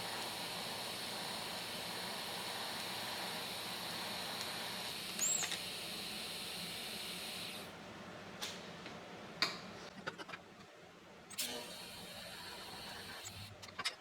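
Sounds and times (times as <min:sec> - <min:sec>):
steady hiss: 0:00.0 - 0:07.8, 0:11.3 - 0:13.6.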